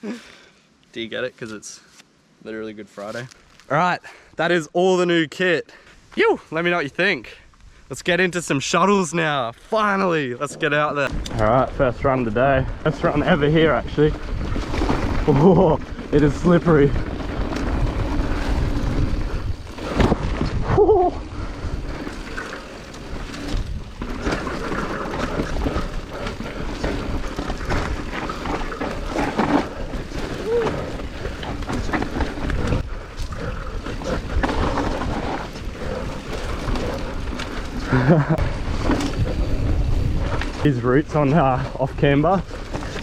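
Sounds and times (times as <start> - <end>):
wind and tyre rumble: 10.4 - 43.0
bike knocking and rattling: 11.1 - 43.0.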